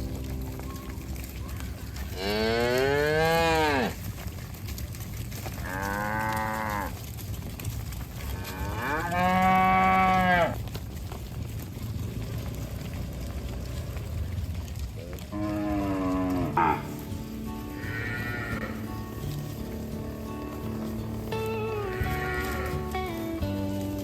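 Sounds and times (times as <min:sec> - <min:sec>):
cows mooing: 0:00.0 - 0:04.1, 0:05.6 - 0:07.0, 0:08.2 - 0:10.6, 0:12.1 - 0:24.0.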